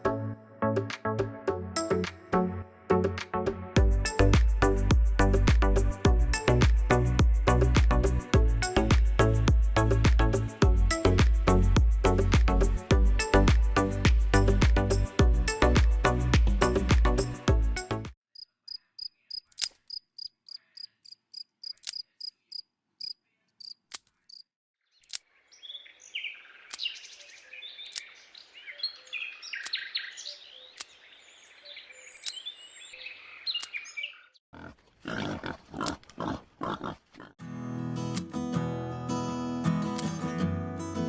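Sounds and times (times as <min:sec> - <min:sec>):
music: 0:00.0 - 0:18.2, 0:37.4 - 0:41.0.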